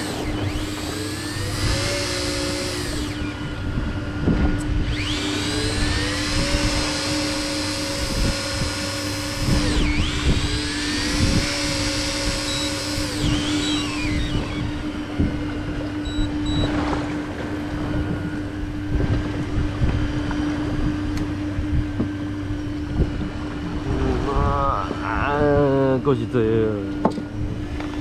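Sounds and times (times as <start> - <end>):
electric fishing reel motor whining: 0.0 - 19.2
steady low hum: 0.0 - 28.0.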